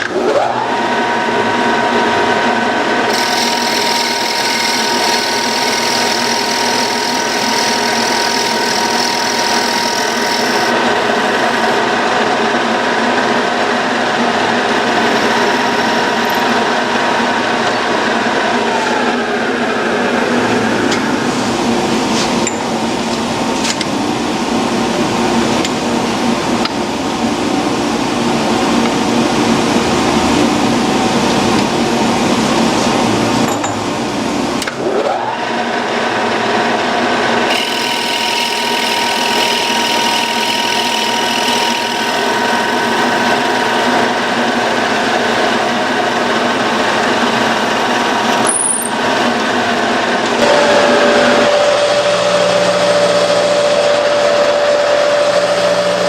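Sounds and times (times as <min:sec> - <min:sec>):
motor spinning up with whine: 0:00.0 - 0:21.9, 0:34.7 - 0:56.0
power tool working wood: 0:00.4 - 0:19.2, 0:35.1 - 0:48.5.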